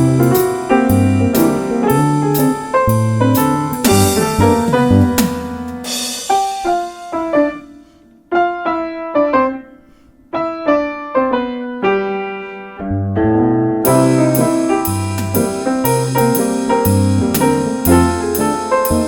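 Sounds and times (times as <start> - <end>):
drum kit with cymbals: 0.0 - 7.9, 13.9 - 19.0
piano melody: 0.0 - 19.0
low bass notes: 2.9 - 6.1.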